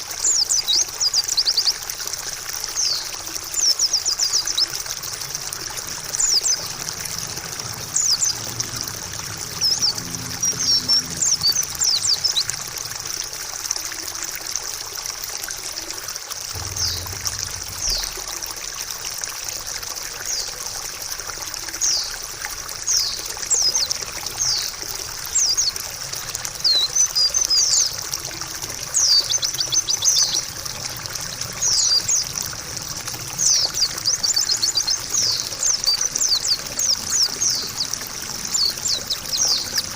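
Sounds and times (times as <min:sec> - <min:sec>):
water trickling: 0:00.0 - 0:39.9
bird chirping: 0:06.2 - 0:12.6, 0:16.6 - 0:18.4, 0:33.4 - 0:39.9
low rumble: 0:16.6 - 0:19.1.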